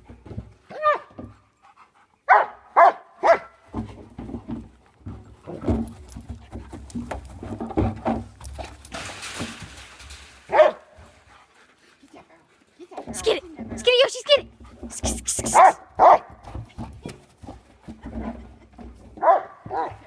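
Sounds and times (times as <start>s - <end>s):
busy low dog noise: 0.6s - 8.9s, 10.5s - 13.6s, 14.4s - 20.0s
dogs barking: 2.3s - 3.6s, 10.5s - 11.0s, 15.4s - 16.4s, 19.2s - 20.0s.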